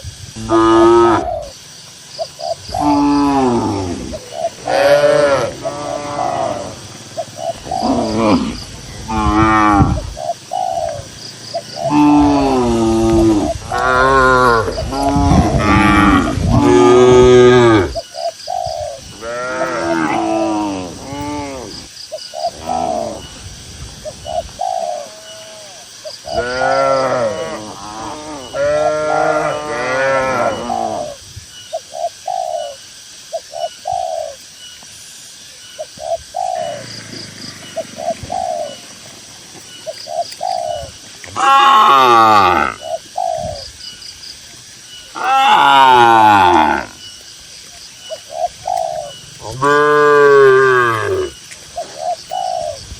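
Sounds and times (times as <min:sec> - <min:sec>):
dove cooing: 0:00.0 - 0:01.6, 0:02.2 - 0:23.4, 0:24.0 - 0:34.4, 0:35.8 - 0:43.7, 0:48.0 - 0:52.9
cattle mooing: 0:04.6 - 0:06.9, 0:41.4 - 0:42.8, 0:45.2 - 0:47.0, 0:49.4 - 0:51.3.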